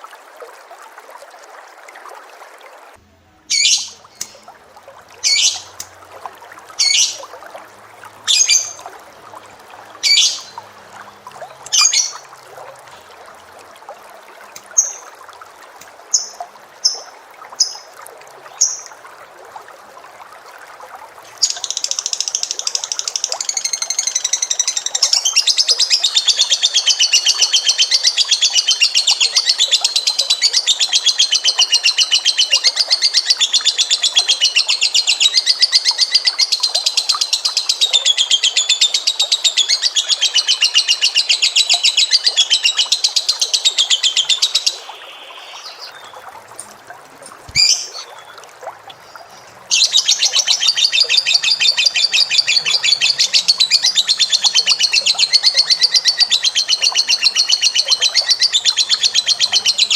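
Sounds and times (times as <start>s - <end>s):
lovebird chattering call: 3.5s - 4.4s, 5.2s - 5.8s, 6.8s - 7.3s, 8.3s - 8.8s, 10.0s - 10.6s, 11.7s - 12.2s, 47.5s - 48.2s.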